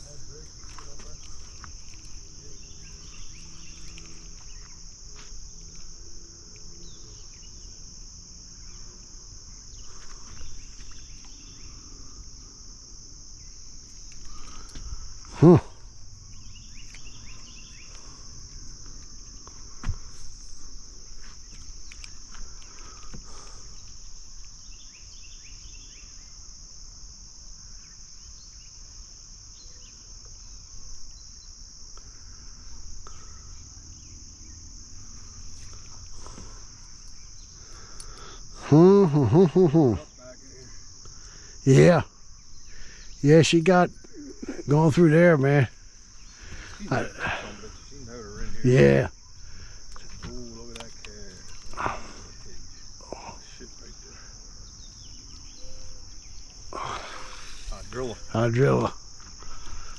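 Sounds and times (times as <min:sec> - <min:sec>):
night insects chorus: 0:00.0 - 0:59.9
faint clicks and rustles: 0:03.0 - 0:05.9, 0:49.8 - 0:52.7.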